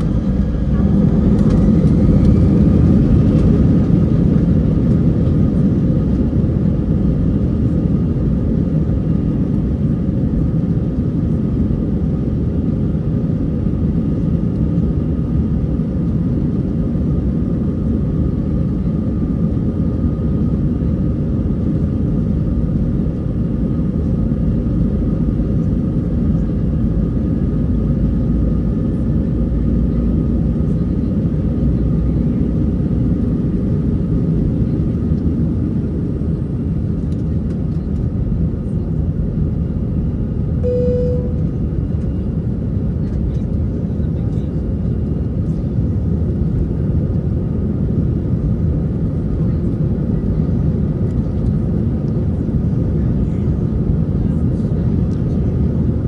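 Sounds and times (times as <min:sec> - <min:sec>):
jet engine rumble in cabin: 0:00.0 - 0:56.0
faint steady whine: 0:40.6 - 0:42.2.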